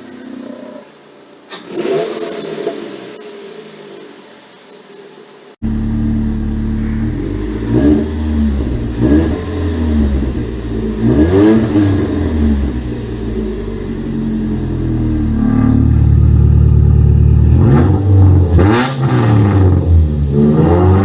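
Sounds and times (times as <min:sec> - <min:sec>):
car engine idling: 0:00.0 - 0:18.6
engine throttle blips: 0:05.6 - 0:20.0.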